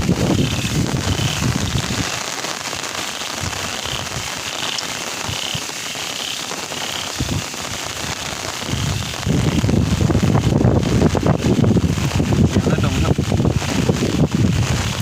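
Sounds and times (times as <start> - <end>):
wind buffeting microphone: 0.0 - 2.4, 3.3 - 4.4, 7.1 - 15.0
steady rain falling: 0.0 - 15.0.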